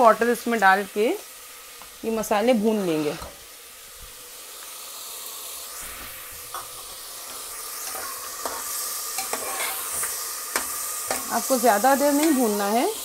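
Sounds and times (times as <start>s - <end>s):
meat sizzling in hot oil: 0.0s - 13.0s
metal spoon scraping a pot: 7.3s - 11.3s.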